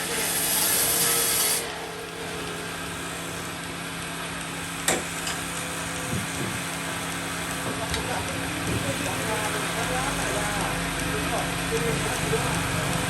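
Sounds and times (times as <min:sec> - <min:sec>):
saw cutting wood: 0:00.0 - 0:04.9
machine humming: 0:00.0 - 0:13.0.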